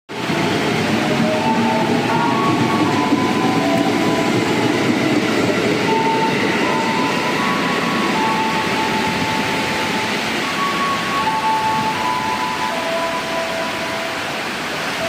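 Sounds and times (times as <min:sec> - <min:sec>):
train rumbling: 0:00.1 - 0:15.0
short high tones: 0:05.9 - 0:14.4.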